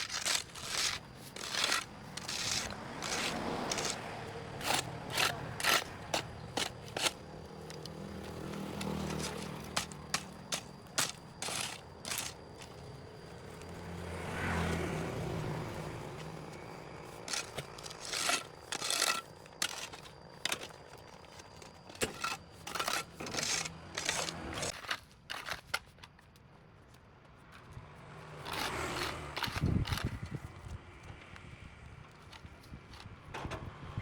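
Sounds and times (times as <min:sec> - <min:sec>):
hand tool scraping concrete: 0:00.0 - 0:13.8, 0:15.6 - 0:26.0, 0:28.4 - 0:30.3
vehicle passing: 0:01.6 - 0:06.6, 0:07.2 - 0:10.8, 0:12.9 - 0:17.7, 0:27.7 - 0:30.3.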